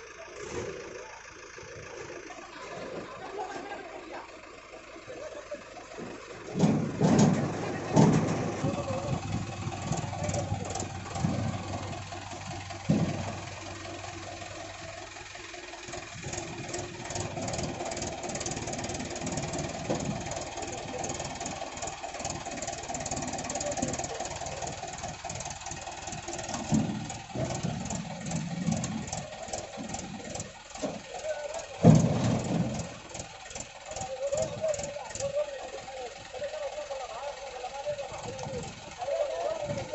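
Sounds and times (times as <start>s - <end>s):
diesel engine clattering: 0.0s - 39.9s
heavy thump: 6.5s - 12.1s, 12.8s - 13.5s, 31.8s - 33.0s.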